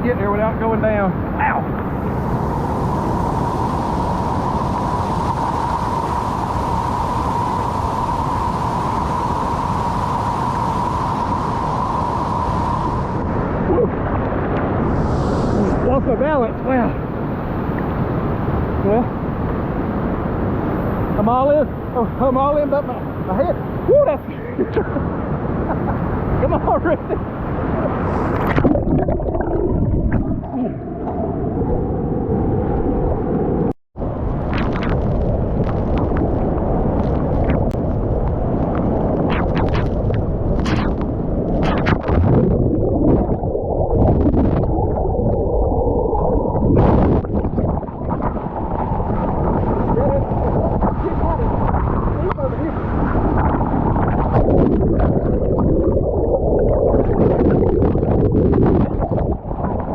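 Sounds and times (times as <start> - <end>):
water splashing: 27.8 - 32.8, 34.4 - 59.9.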